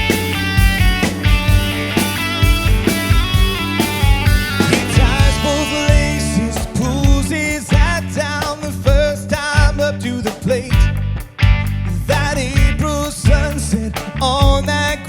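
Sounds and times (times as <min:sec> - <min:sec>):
rock band playing: 0:00.0 - 0:15.0
lead vocal with vibrato: 0:04.6 - 0:10.8.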